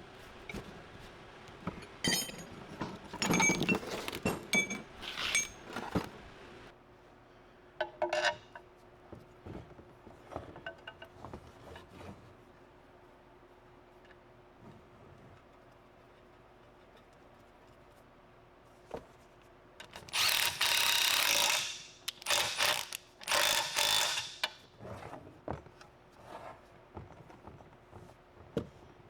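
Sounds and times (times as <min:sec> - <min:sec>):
metal tools clinking: 0:01.6 - 0:06.7.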